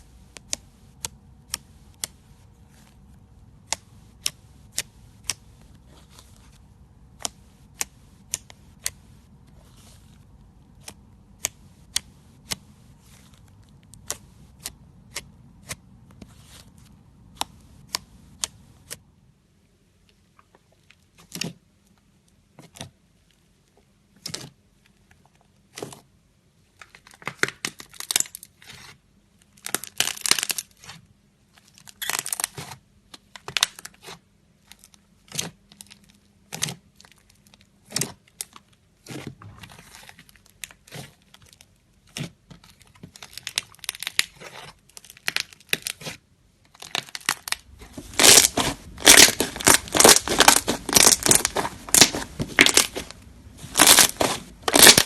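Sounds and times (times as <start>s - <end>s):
slime crackling and popping: 29.6s - 30.9s, 39.9s - 55.0s.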